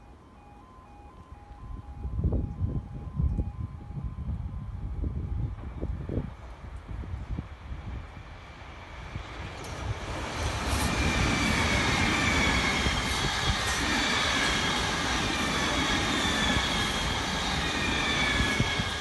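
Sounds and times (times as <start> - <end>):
wheels rumbling on rail: 0.0 - 19.0.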